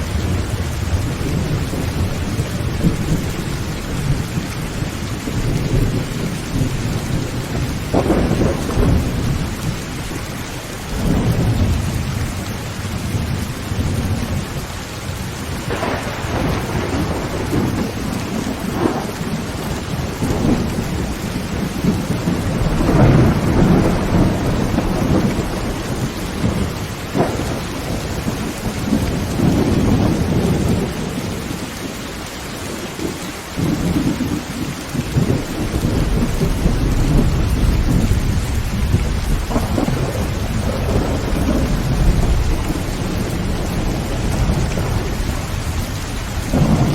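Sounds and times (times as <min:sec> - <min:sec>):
thunder rumbling: 0:00.0 - 0:32.0, 0:32.6 - 0:46.9
heavy rain on a tin roof: 0:00.0 - 0:46.9.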